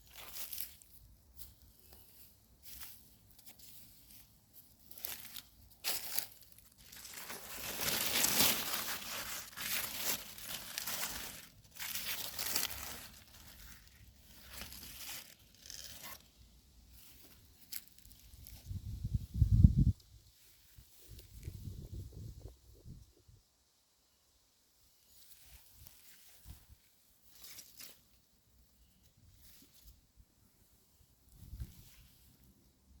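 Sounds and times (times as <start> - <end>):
rustling and crinkling handling: 0.0 - 18.8, 25.1 - 32.6.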